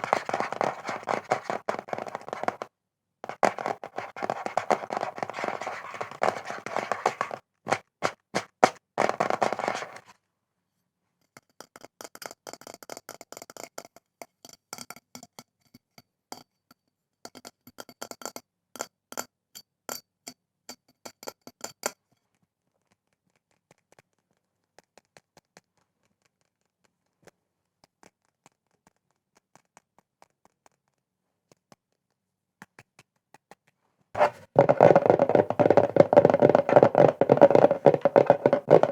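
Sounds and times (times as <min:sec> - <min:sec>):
scratching on objects: 0:00.0 - 0:10.1, 0:34.2 - 0:38.9
sharp taps on objects: 0:00.0 - 0:10.1, 0:34.2 - 0:38.9.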